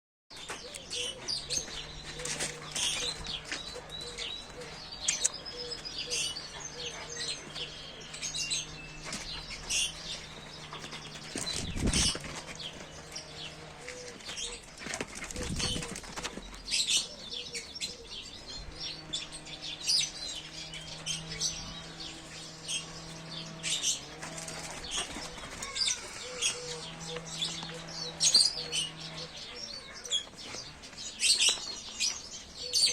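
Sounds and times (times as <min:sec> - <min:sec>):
small birds chirping: 0:00.3 - 0:32.9
rustling and flapping: 0:00.4 - 0:04.2, 0:09.0 - 0:17.1, 0:24.0 - 0:32.4.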